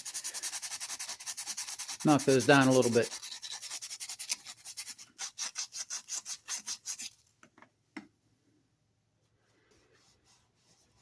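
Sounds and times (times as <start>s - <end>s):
sandpaper rasping on metal: 0.0s - 7.2s.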